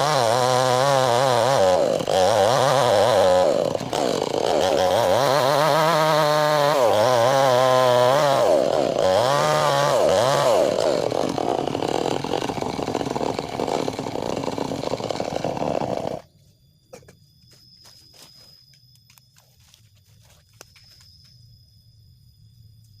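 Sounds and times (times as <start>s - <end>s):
chainsaw cutting log: 0.0s - 16.2s.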